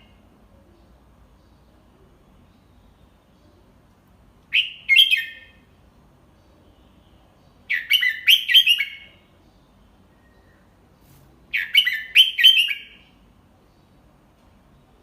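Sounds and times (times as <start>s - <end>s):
bird singing clear notes: 4.5s - 5.7s, 6.4s - 10.8s, 11.5s - 13.9s.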